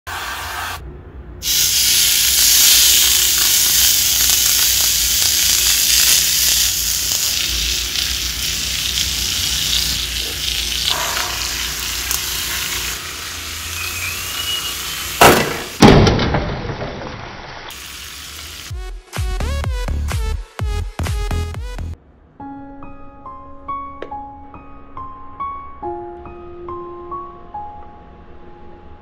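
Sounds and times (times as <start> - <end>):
chicken sizzling in oil: 1.4 - 15.4, 17.3 - 18.7.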